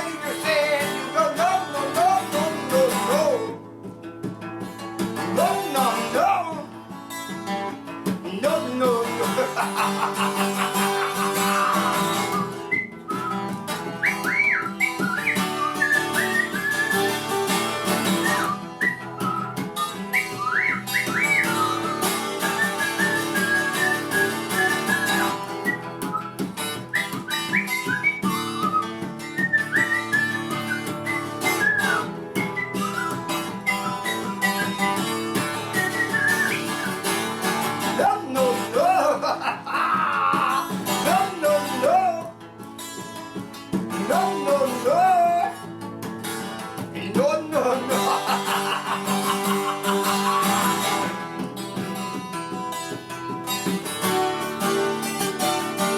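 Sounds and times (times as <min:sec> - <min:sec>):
person whistling a melody: 0:00.0 - 0:03.7, 0:08.5 - 0:39.1, 0:44.0 - 0:45.7, 0:47.0 - 0:51.3
acoustic guitar: 0:00.0 - 0:55.9.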